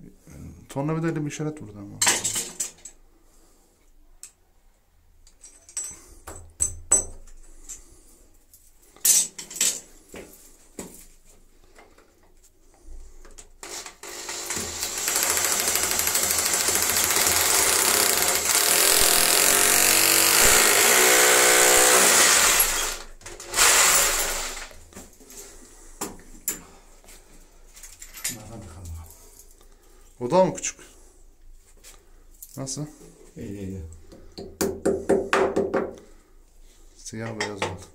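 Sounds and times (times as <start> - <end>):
tools knocking and clicking: 5.2 - 7.4, 37.2 - 37.9
electric drill drilling into wall: 13.6 - 24.8.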